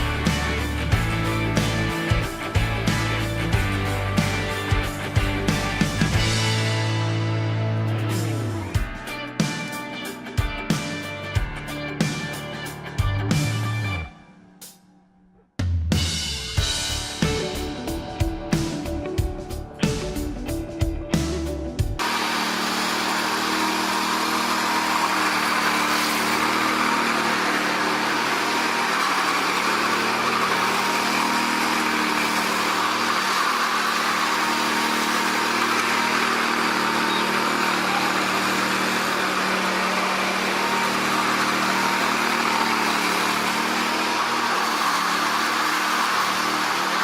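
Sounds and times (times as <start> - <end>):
construction machine engine running: 0.0 - 8.9, 21.2 - 47.0.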